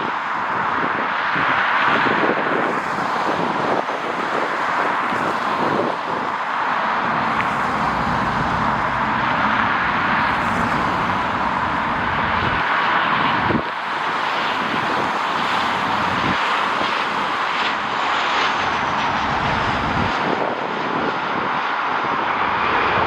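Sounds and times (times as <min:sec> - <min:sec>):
jet engine rushing: 0:02.3 - 0:23.0
deep engine rumble: 0:06.5 - 0:16.8.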